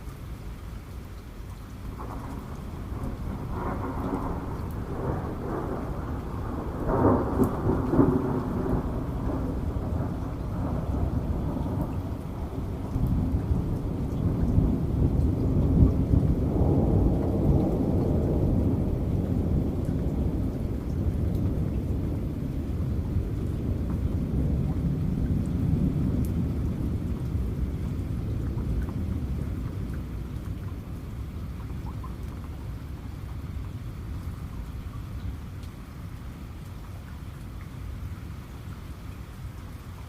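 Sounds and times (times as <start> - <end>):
steady rain: 0.0 - 40.0
thunder rumbling: 1.9 - 33.2.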